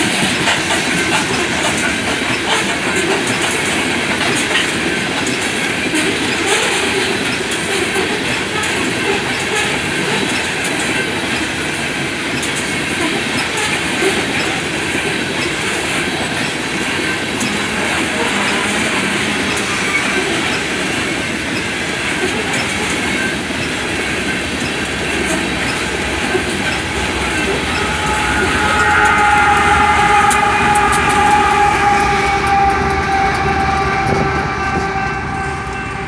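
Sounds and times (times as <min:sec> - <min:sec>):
train wheels clattering on rail: 0:00.0 - 0:36.0
locomotive horn chord: 0:17.4 - 0:20.8, 0:24.8 - 0:36.0.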